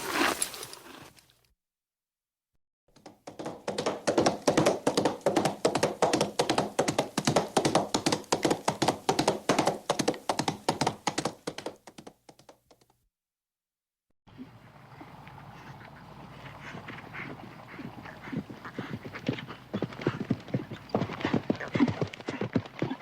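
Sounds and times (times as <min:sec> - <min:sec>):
hoofbeats of running horse: 0:02.9 - 0:13.0, 0:15.3 - 0:23.0.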